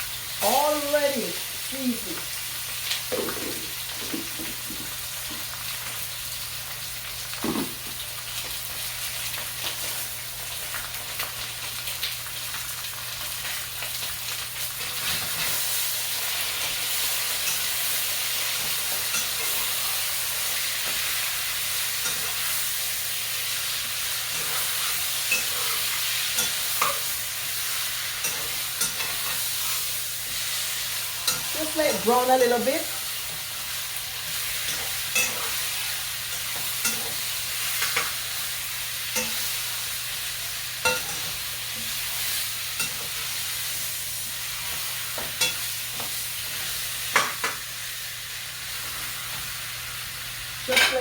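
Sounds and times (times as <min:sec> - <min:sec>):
chicken sizzling in a pot: 0:00.0 - 0:51.0.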